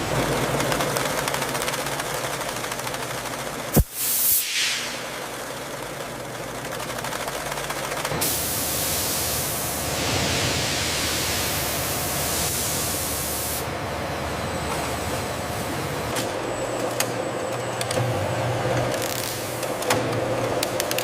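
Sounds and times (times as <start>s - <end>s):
machinery with fast rattle: 0.0s - 3.8s, 5.1s - 10.0s
machinery hiss: 3.8s - 5.4s, 8.2s - 13.7s.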